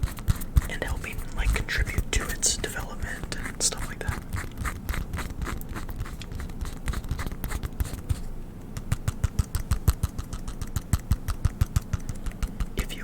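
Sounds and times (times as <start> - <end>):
tapping and clicking on objects: 8.7 - 12.8.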